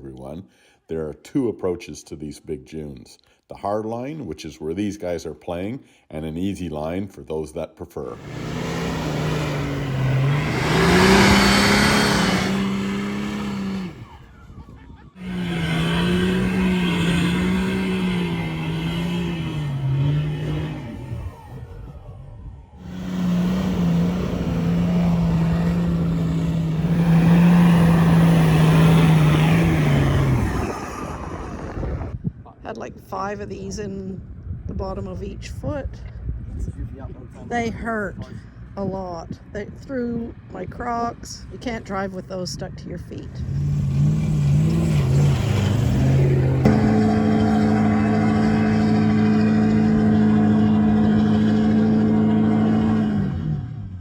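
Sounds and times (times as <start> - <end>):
dirt bike engine revving high: 8.2 - 32.1, 43.4 - 53.7.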